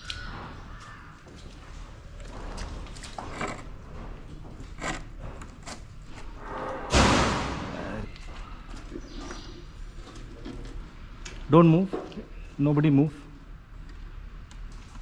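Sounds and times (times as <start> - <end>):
objects being handled: 2.2 - 6.4.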